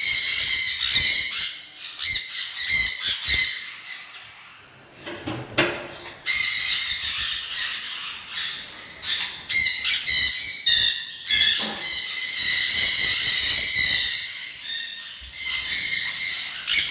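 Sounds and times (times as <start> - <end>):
birds squawking and chattering: 0.0 - 16.9.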